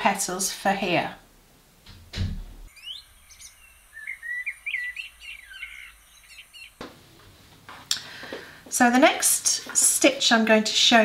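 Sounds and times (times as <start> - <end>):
bird chirps and rising whistles: 2.7 - 6.8.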